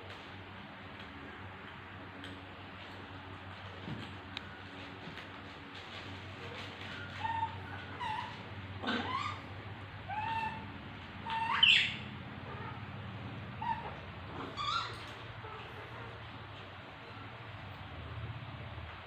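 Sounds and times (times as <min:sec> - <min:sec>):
baby monkey cooing and squealing: 0:07.2 - 0:09.5, 0:10.1 - 0:12.8, 0:13.6 - 0:15.1.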